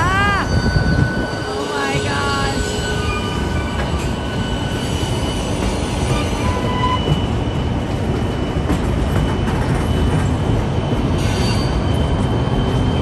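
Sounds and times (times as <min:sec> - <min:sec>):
high wheel squeals: 0:00.0 - 0:07.8, 0:11.0 - 0:13.0
train cars rumbling: 0:00.0 - 0:13.0.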